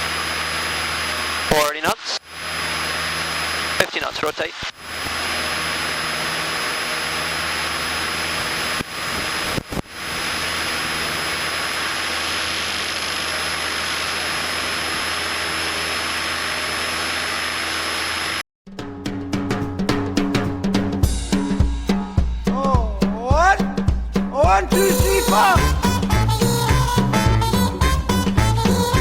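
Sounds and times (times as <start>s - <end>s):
aircraft engine drone: 0.0s - 4.1s, 4.7s - 18.4s
wind and propeller hiss: 0.0s - 18.4s.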